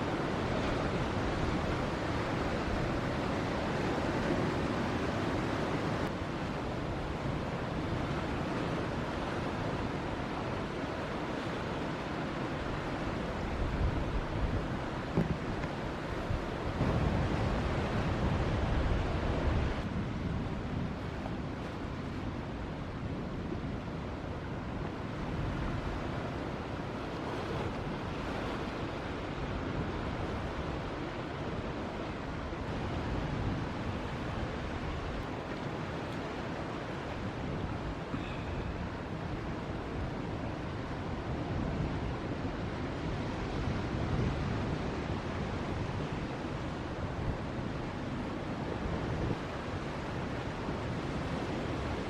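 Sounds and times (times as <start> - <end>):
waves breaking: 0.0 - 52.0
wind buffeting microphone: 12.6 - 52.0.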